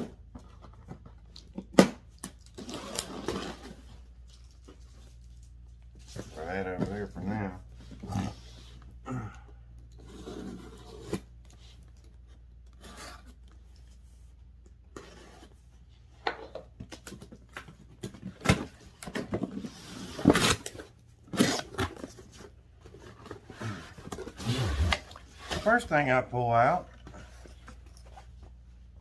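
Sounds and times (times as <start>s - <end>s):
cardboard box rustling and scraping: 10.0s - 11.8s, 18.2s - 25.9s.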